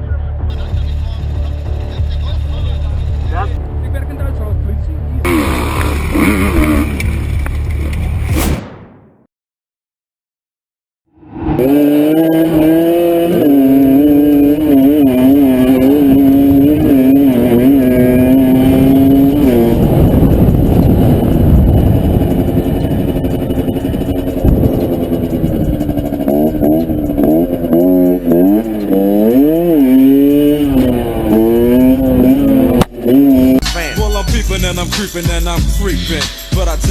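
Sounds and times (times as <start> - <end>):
motorcycle engine revving: 11.6 - 33.6.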